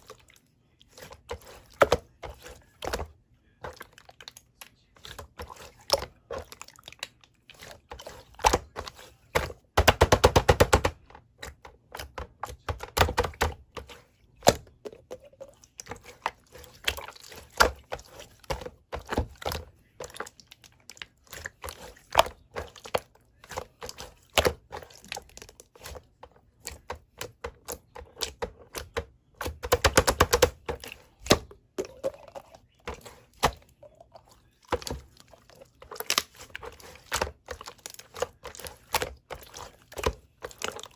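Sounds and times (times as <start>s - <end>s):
slime squishing with clicks and pops: 14.4s - 40.9s.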